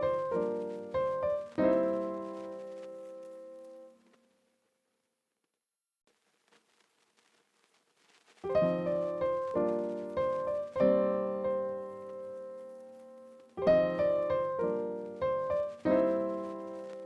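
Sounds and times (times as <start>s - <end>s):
soft piano chords: 0.0s - 4.0s, 8.5s - 17.0s.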